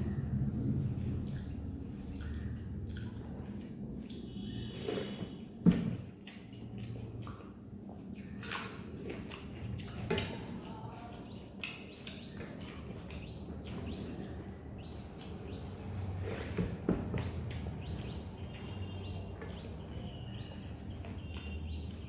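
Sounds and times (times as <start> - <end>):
soft chewing: 0.9 - 5.4, 6.1 - 22.0
faint bird chirps: 4.0 - 5.6, 17.5 - 22.0.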